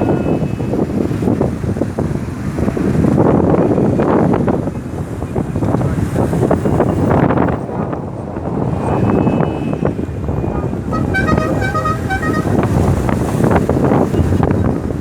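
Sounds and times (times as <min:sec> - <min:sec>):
wind buffeting microphone: 0:00.0 - 0:15.0
short horn beeps: 0:10.9 - 0:12.8.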